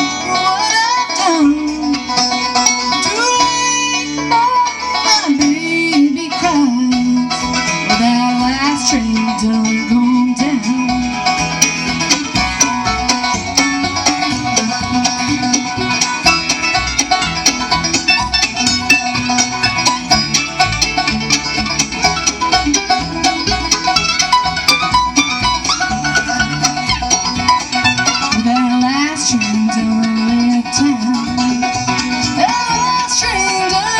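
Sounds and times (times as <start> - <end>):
bass notes: 0.0 - 33.9
fast banjo picking: 0.0 - 33.9
guitar: 0.0 - 33.9.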